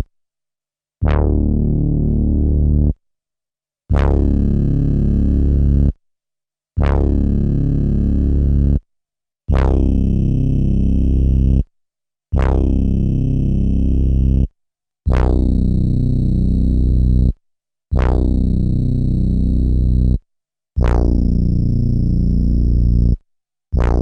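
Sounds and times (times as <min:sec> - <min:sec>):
deep synth bass notes: 0:01.0 - 0:02.9, 0:03.9 - 0:05.9, 0:06.8 - 0:08.8, 0:12.4 - 0:14.2, 0:15.1 - 0:17.3, 0:18.0 - 0:20.2, 0:20.8 - 0:23.2, 0:23.8 - 0:24.0.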